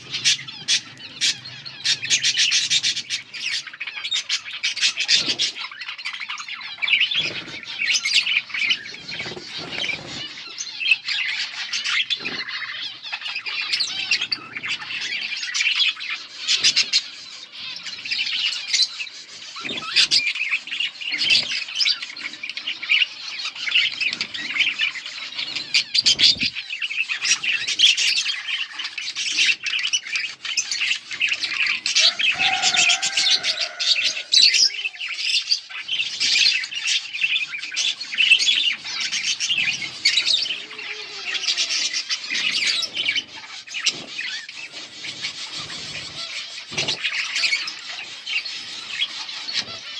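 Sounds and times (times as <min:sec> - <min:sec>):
budgerigars chattering: 0:00.0 - 0:49.9.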